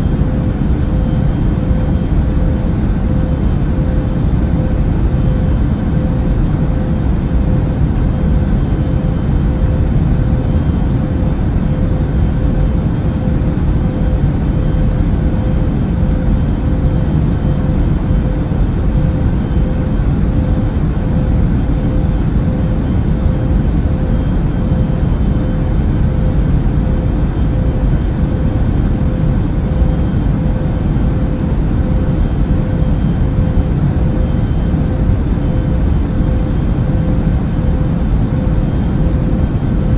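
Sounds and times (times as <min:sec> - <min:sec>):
airplane cabin engine rush: 0:00.0 - 0:39.9
constant hum: 0:00.0 - 0:39.9.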